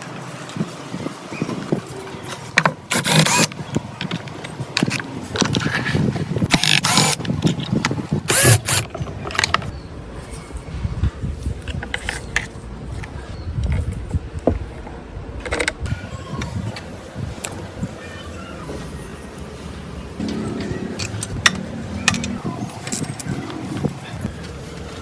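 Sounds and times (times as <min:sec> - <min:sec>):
metal parts scraping and clattering: 0:02.2 - 0:10.7, 0:11.3 - 0:13.4, 0:18.8 - 0:25.0.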